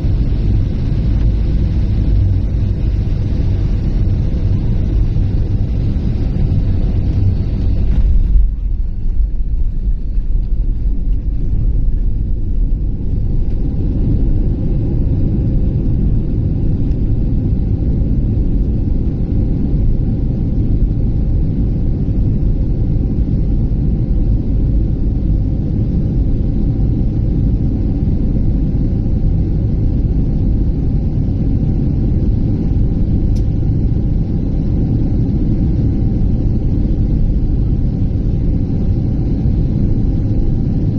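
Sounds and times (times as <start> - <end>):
airliner engines and airflow rumble: 0.0 - 40.9.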